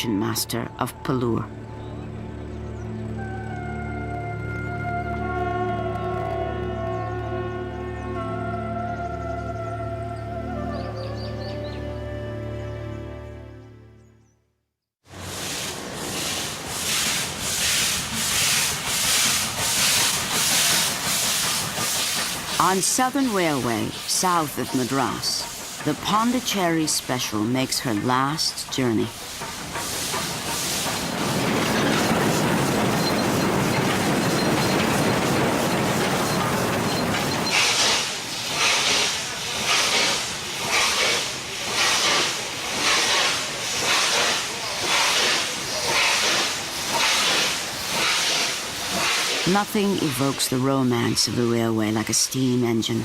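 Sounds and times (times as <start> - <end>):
steam hissing: 15.1 - 51.4
steam locomotive chuffing: 15.1 - 53.0
train rumbling: 15.1 - 53.0.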